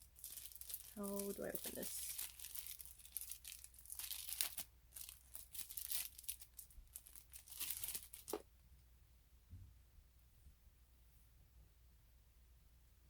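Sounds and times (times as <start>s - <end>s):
packaging torn and crinkled: 0.0s - 8.4s.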